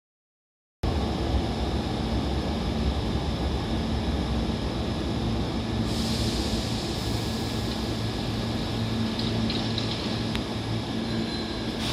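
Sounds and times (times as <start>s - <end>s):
electric train rumble: 0.8s - 11.9s.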